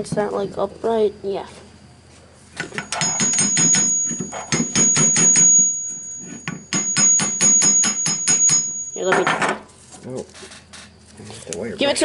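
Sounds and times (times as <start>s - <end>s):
high metallic ring: 2.6s - 9.4s.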